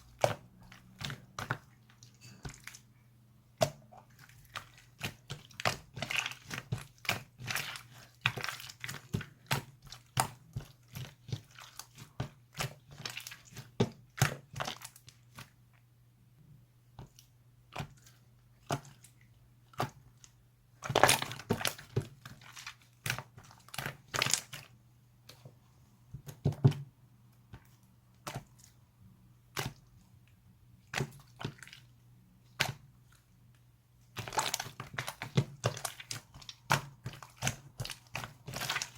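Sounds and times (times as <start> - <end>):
slime squished by hand: 3.6 - 15.6, 34.1 - 38.9.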